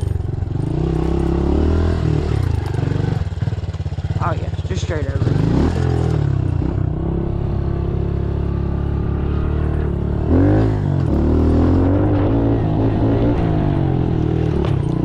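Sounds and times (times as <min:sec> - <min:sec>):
pit bike engine revving: 0:00.0 - 0:15.0.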